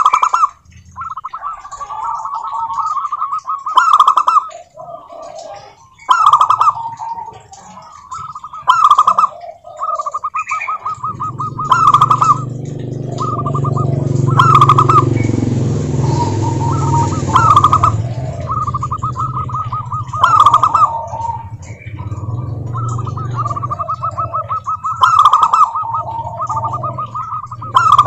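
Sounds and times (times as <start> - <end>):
doves cooing: 0.0 - 28.0
low hum: 10.8 - 28.0.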